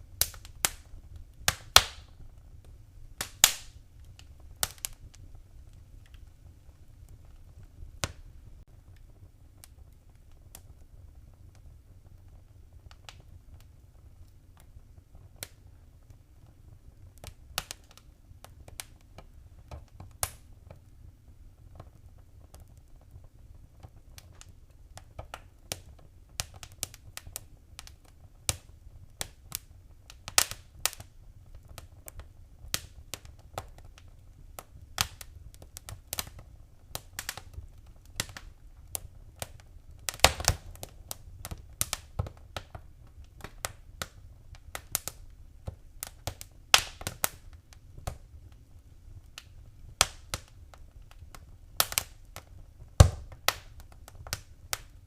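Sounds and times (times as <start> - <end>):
faint low rumble: 0.0 - 26.4
wood fire crackling: 0.0 - 55.0.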